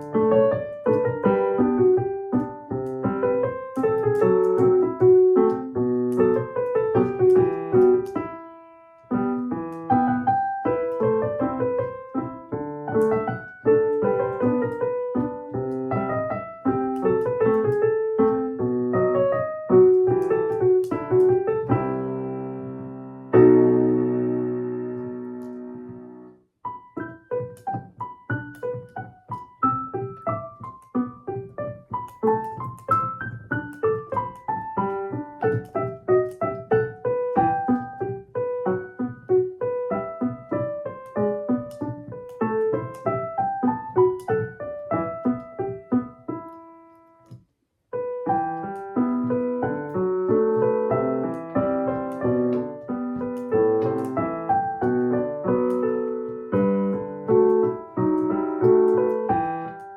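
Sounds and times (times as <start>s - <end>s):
solo piano melody: 0.0s - 59.9s.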